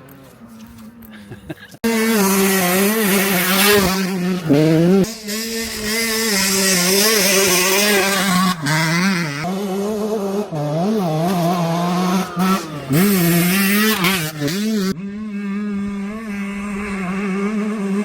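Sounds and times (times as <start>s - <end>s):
two-stroke motocross bike engine: 0.0s - 18.0s.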